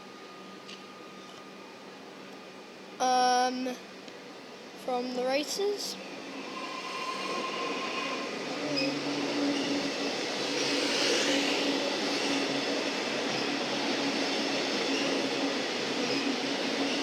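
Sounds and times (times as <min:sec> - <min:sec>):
train hum: 0:00.0 - 0:17.0
electric train passing: 0:03.8 - 0:17.0.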